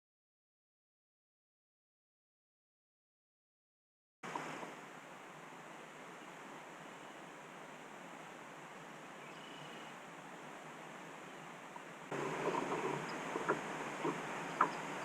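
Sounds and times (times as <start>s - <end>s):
faint outdoor background hiss: 4.2s - 15.0s.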